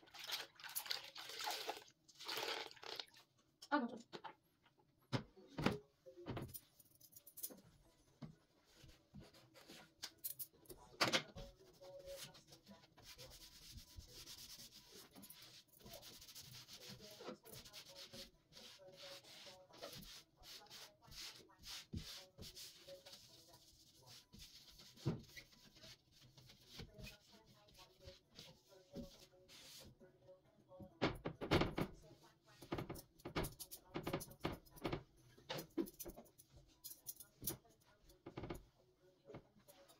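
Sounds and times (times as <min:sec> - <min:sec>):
scrubbing a surface: 0:07.8 - 0:10.1, 0:11.4 - 0:30.0.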